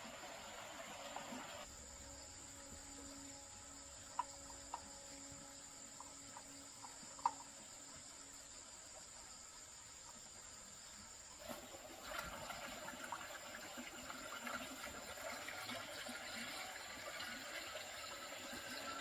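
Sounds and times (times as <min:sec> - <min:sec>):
steady rushing hiss: 0:00.0 - 0:11.9.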